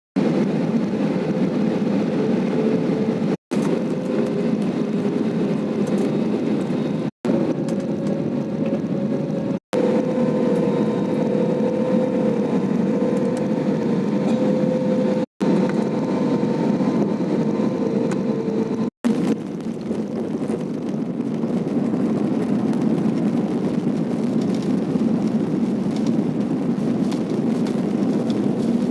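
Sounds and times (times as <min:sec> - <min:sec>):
jet engine drone: 0:00.2 - 0:28.9
wavering humming tone: 0:09.8 - 0:18.9.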